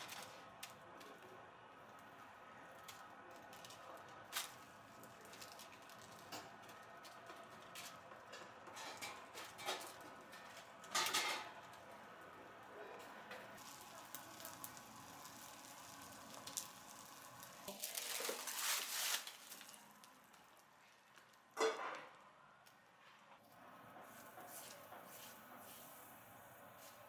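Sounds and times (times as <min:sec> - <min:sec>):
utensils and dishes clattering: 0:08.2 - 0:11.6, 0:21.6 - 0:22.0
food sizzling faintly: 0:11.0 - 0:21.6.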